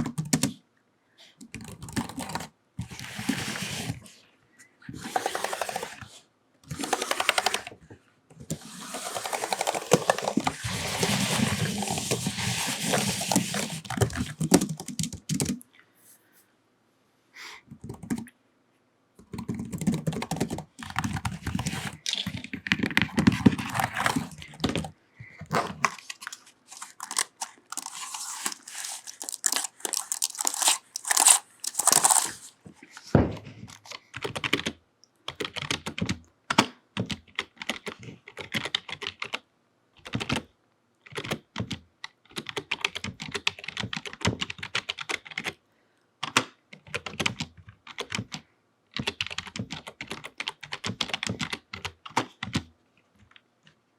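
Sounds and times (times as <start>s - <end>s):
fingernails rubbing on keyboard: 4.9s - 7.8s, 8.5s - 15.5s, 19.5s - 32.5s
fingernails clicking on keys: 6.7s - 7.7s.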